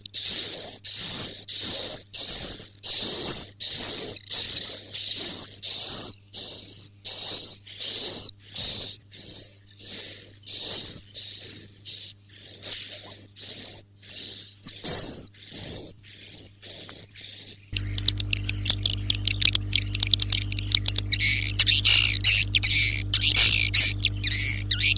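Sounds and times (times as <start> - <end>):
high buzzy bird chirps: 17.3 - 24.9
low hum: 17.8 - 24.9
rapid twittering chirps: 17.8 - 24.9.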